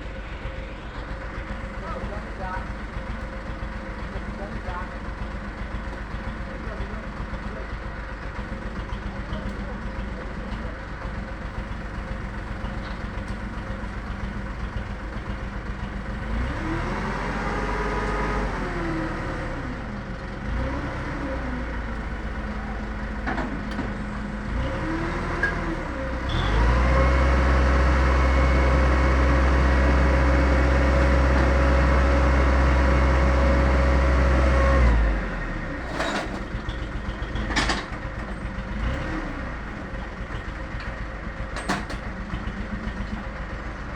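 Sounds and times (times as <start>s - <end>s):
vehicle engine revving: 16.2s - 19.8s, 24.5s - 36.0s, 38.7s - 39.7s.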